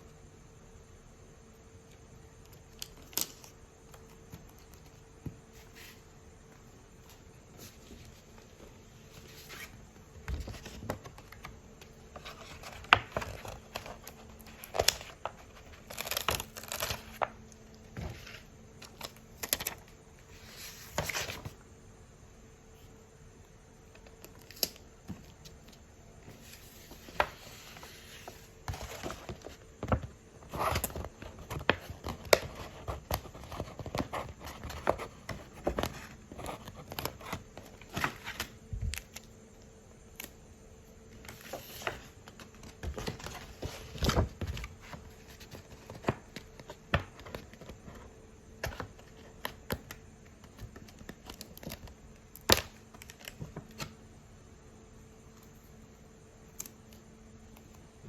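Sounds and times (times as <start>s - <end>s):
packaging and paper crinkling: 12.1s - 17.4s.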